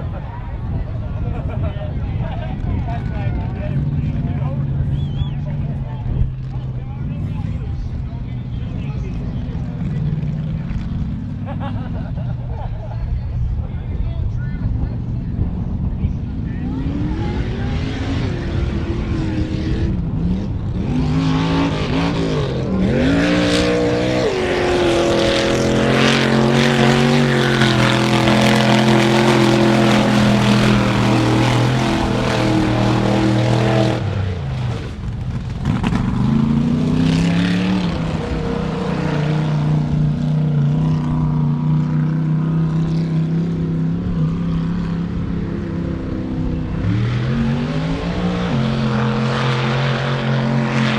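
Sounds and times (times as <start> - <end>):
truck engine revving: 14.7 - 50.9.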